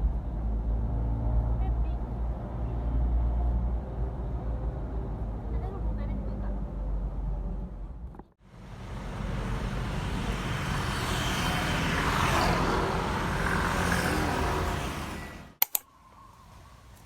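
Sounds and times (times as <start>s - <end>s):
motor vehicle passing: 8.8s - 15.6s
sharp clicks: 15.6s - 15.9s.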